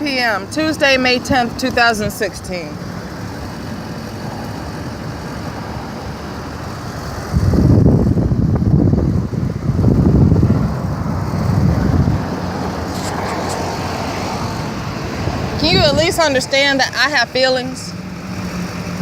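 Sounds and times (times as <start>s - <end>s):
street traffic noise: 0.0s - 19.0s
loud low rumble: 7.3s - 17.0s.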